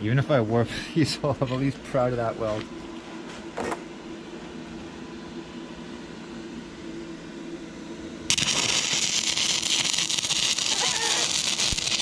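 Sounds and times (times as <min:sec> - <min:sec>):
machine hum: 0:00.0 - 0:12.0
welding arc crackling and hissing: 0:08.3 - 0:12.0.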